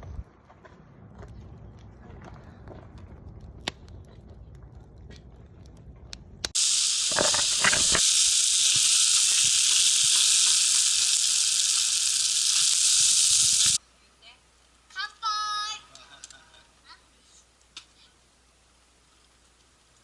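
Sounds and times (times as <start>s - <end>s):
wood fire crackling: 0.0s - 20.0s
loud steady hiss: 6.5s - 20.0s.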